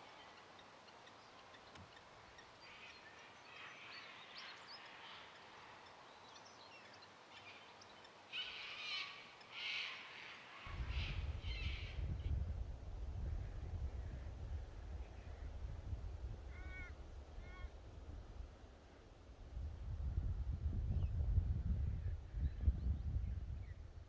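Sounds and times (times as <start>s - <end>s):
wild birds calling: 0.0s - 12.0s.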